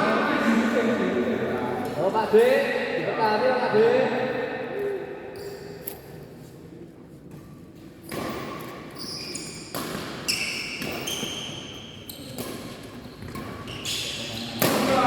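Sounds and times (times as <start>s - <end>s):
shoes squeaking on floor: 8.1s - 14.6s
racket hitting shuttlecock: 14.6s - 15.0s.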